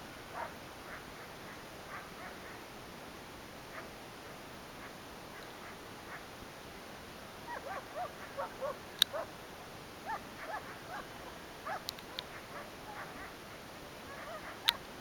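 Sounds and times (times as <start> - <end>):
dogs yipping and barking: 0.3 - 1.0, 7.5 - 9.3, 10.0 - 14.9.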